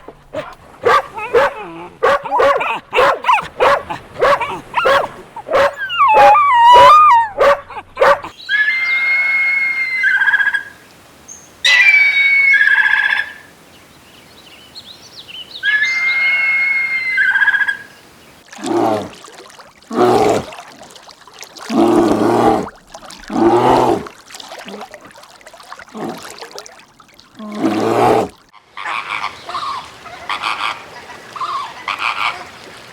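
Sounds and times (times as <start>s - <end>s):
dog whining and howling: 4.2s - 8.3s
higher animal calls: 4.4s - 10.7s
lower animal calls: 4.8s - 7.5s.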